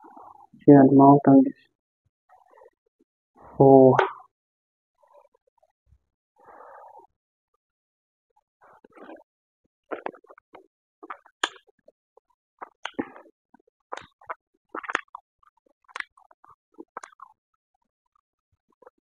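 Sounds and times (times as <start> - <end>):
chewing and lip-smacking: 9.9 - 11.7, 12.6 - 17.4.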